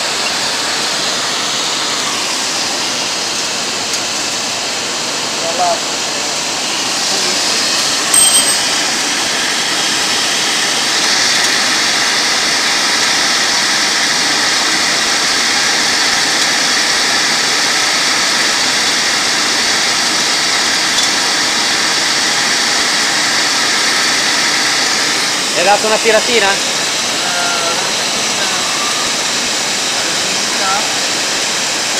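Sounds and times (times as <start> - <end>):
grinder wheel hissing: 0.0 - 31.9
high-pitched ring: 8.0 - 9.4.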